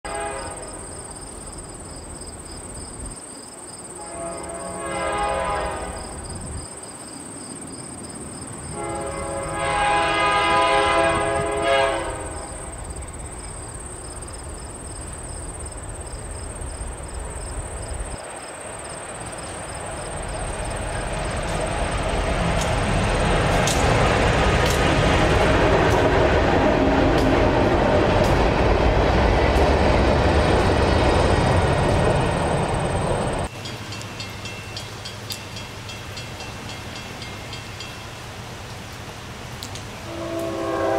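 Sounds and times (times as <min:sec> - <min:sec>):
locomotive air horn: 0:00.0 - 0:00.9, 0:03.9 - 0:06.2, 0:08.7 - 0:12.8, 0:40.0 - 0:40.9
engine rumble: 0:19.0 - 0:33.5
wheels clicking over rail joints: 0:19.0 - 0:38.1.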